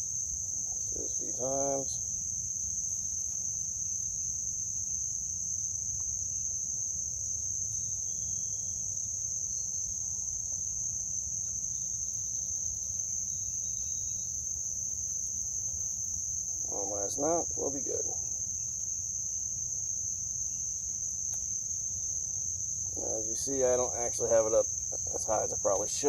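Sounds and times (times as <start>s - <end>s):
insect chorus: 0.0s - 26.0s.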